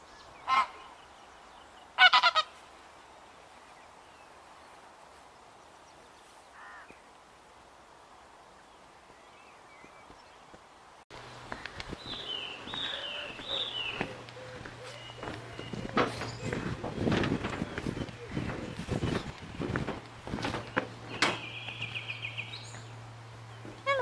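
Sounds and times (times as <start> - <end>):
honking bird calls: 0.4 - 1.0, 2.0 - 2.6, 11.5 - 19.2.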